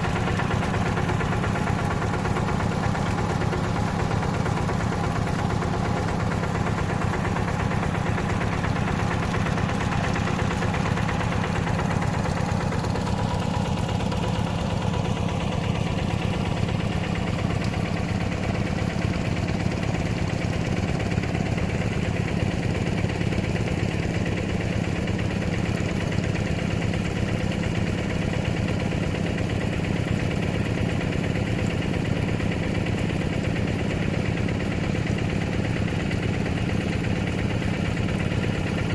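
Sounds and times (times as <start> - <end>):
hand tractor engine running: 0.0 - 38.9.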